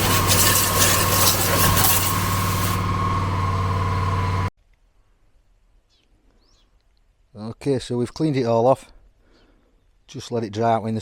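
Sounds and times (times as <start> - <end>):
hiss of water spray: 0.0 - 3.2
pressure washer machine hum: 0.0 - 4.5
faint bird chirps: 5.8 - 6.8.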